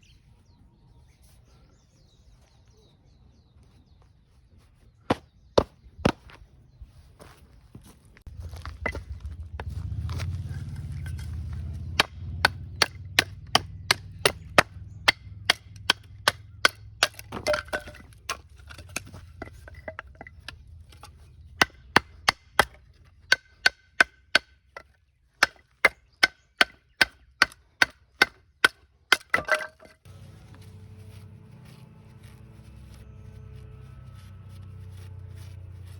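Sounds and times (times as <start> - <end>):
chopping wood: 5.1 - 6.3, 10.9 - 30.0.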